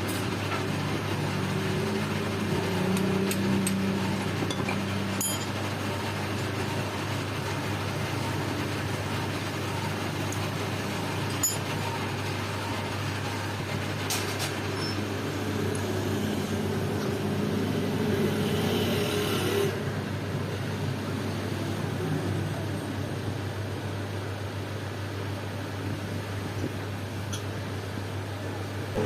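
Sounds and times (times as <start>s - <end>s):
machine humming: 0.0s - 21.6s.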